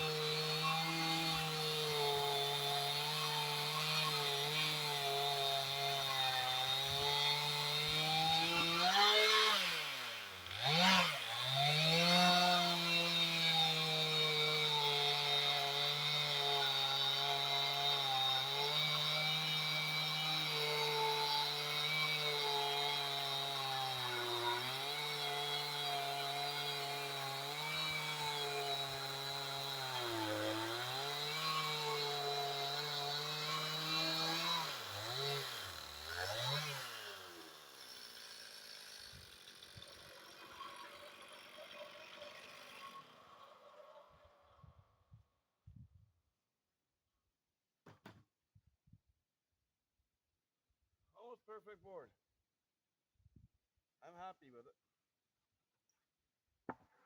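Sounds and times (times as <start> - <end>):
chainsaw cutting log: 0.0 - 44.7.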